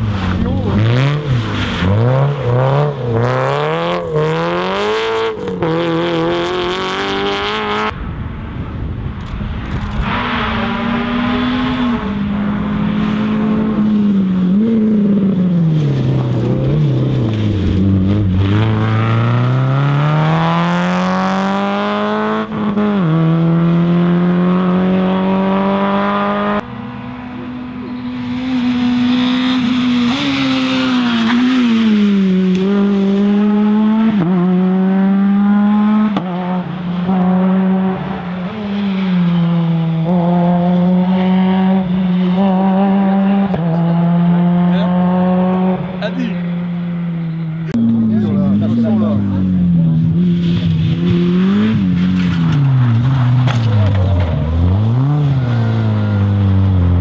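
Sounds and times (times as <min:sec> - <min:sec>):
rally car engines revving: 0:00.0 - 0:08.1, 0:09.2 - 0:57.0.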